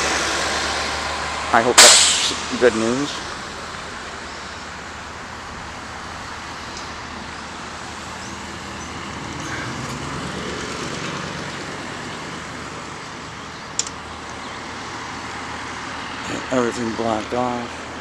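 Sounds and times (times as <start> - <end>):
road traffic noise: 0.0 - 18.0
vehicle passing by: 0.0 - 18.0
sharp click: 13.8 - 14.0.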